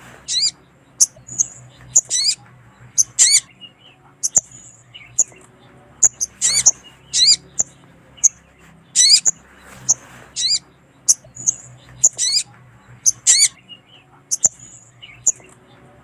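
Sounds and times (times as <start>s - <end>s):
sunbird high chirps: 0.1s - 15.8s
sunbird warbled phrases: 6.0s - 8.4s.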